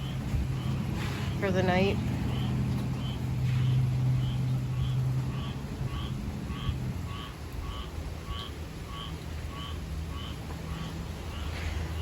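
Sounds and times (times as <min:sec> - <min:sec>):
frog calling: 0:00.0 - 0:12.0.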